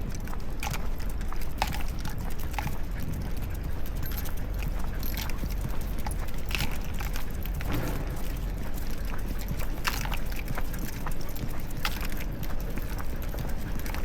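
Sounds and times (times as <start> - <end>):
dog footsteps on pavement: 0.0 - 14.0
low rumble of street noise: 0.0 - 14.0.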